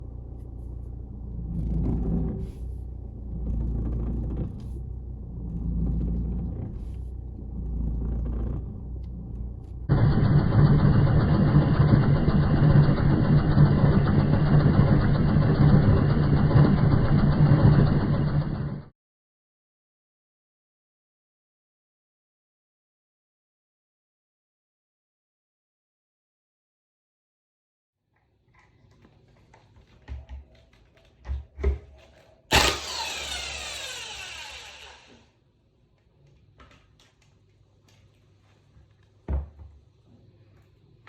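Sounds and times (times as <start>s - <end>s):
car groaning rumble: 0.0s - 9.9s.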